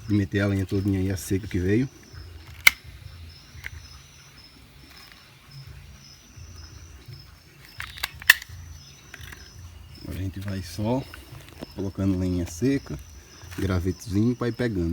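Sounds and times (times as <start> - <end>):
insect chirping: 0.0 - 14.9
sharp clicks or snaps: 2.4 - 4.0, 7.6 - 9.7.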